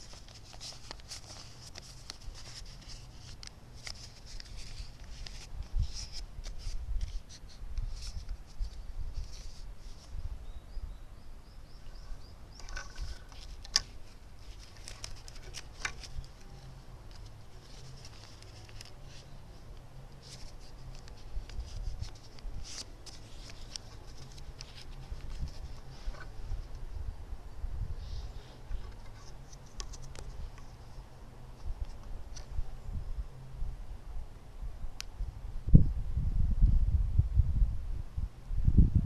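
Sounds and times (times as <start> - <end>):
light scraping: 20.2 - 26.8, 28.0 - 31.0.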